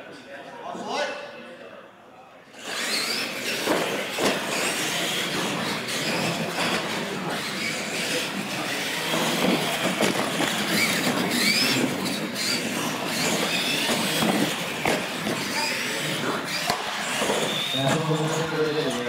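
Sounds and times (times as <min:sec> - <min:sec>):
electric motors whining: 0:02.5 - 0:19.0
rush of tyres and drivetrain: 0:02.6 - 0:17.8.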